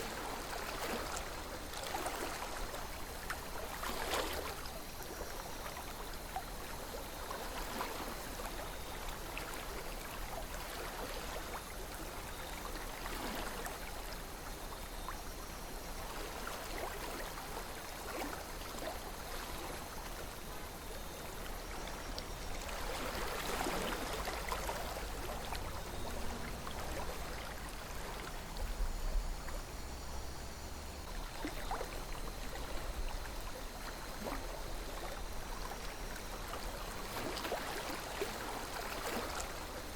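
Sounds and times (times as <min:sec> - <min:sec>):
water splashing and gurgling: 0:00.0 - 0:14.4, 0:15.9 - 0:39.9
river flowing: 0:16.1 - 0:39.9.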